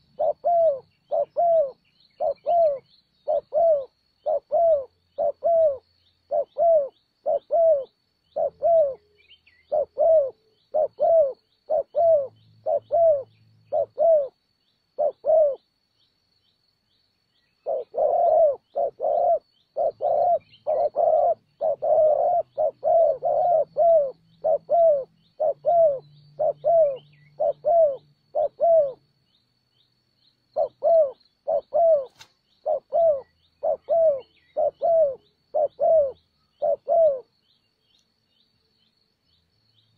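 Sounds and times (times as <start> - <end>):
dove cooing: 0.0 - 14.4, 15.0 - 15.7, 17.6 - 29.1, 30.5 - 37.4.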